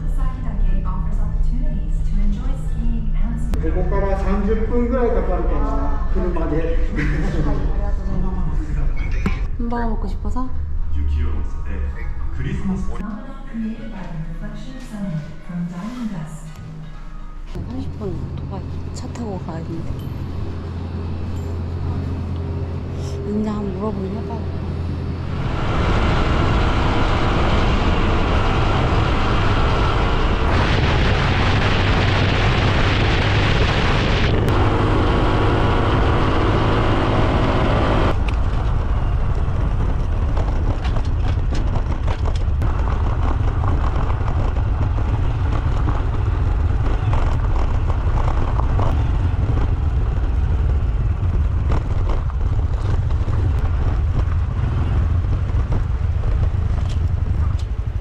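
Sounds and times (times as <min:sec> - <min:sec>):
motorcycle engine running: 0:17.6 - 0:58.0
wind rumble on microphone: 0:18.2 - 0:58.0.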